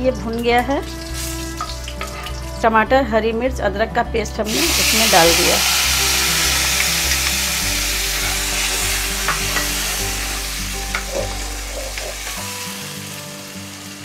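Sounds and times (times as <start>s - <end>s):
paste sizzling in hot oil: 0.8s - 2.5s, 4.5s - 14.0s
steel spoon scraping pan: 4.7s - 12.4s.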